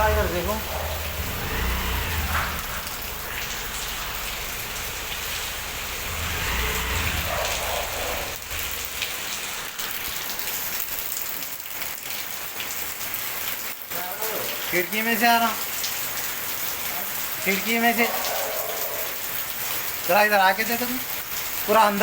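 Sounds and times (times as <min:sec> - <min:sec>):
low rumble: 0:00.0 - 0:09.6
water splashing: 0:00.0 - 0:11.8
heavy rain falling: 0:00.0 - 0:22.0.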